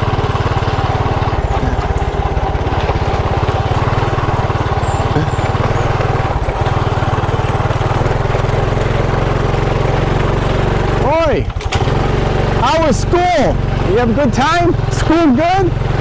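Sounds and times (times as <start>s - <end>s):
small motorcycle engine putter: 1.3s - 10.8s, 11.4s - 12.0s.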